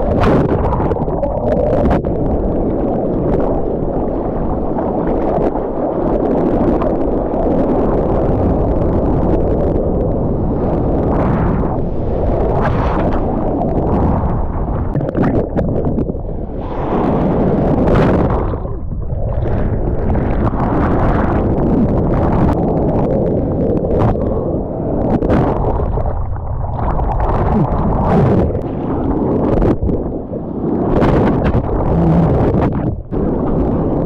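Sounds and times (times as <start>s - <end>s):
wind buffeting microphone: 0.0s - 34.0s
rushing splashing water: 10.7s - 23.1s, 25.0s - 34.0s.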